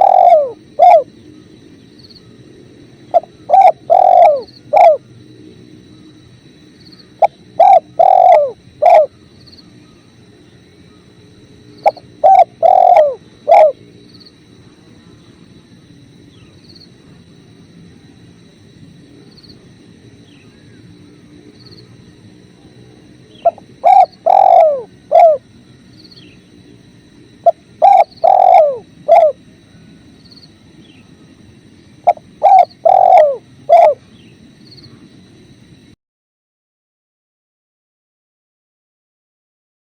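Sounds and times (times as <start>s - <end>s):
dove cooing: 0.0s - 1.2s, 3.1s - 5.1s, 7.0s - 9.8s, 11.8s - 13.9s, 21.7s - 26.4s, 27.4s - 29.9s, 32.0s - 34.3s.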